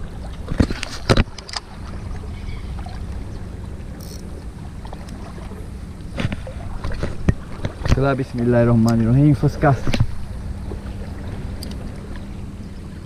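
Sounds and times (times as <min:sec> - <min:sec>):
low wind rumble on microphone: 0:00.0 - 0:13.0
fishing reel clicks and knocks: 0:04.0 - 0:04.3.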